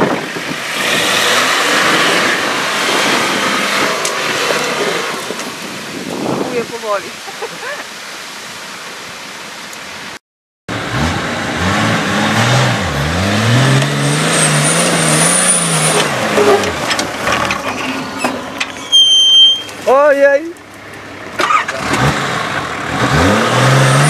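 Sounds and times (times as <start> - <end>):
diesel engine revving: 0.0 - 6.4, 10.7 - 18.6, 21.1 - 24.0.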